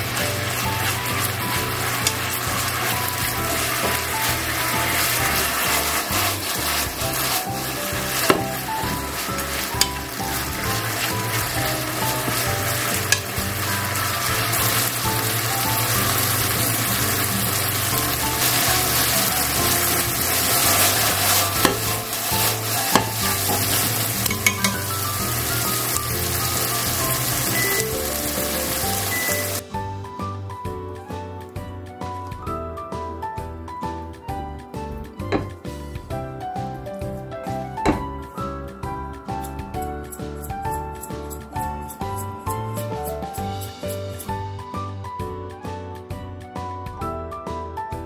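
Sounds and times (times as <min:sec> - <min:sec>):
chicken sizzling in frying pan: 0:00.0 - 0:29.8, 0:41.9 - 0:44.5
chopsticks clicking on pan: 0:02.0 - 0:02.4, 0:13.0 - 0:13.4, 0:20.6 - 0:21.9, 0:22.9 - 0:24.9.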